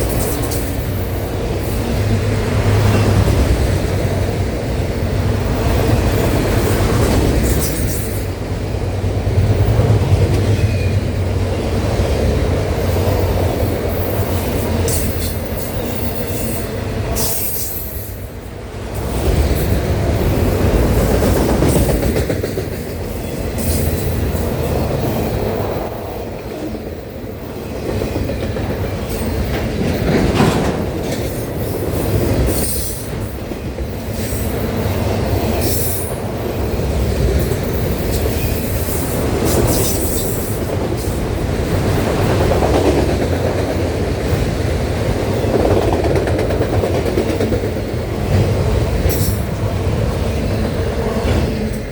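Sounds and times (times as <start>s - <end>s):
freight train rumble and clatter: 0.0s - 51.9s.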